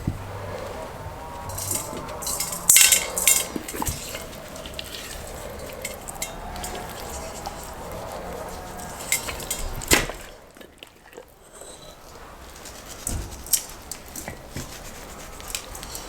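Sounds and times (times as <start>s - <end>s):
utensils clinking against dishes: 0.4s - 14.7s.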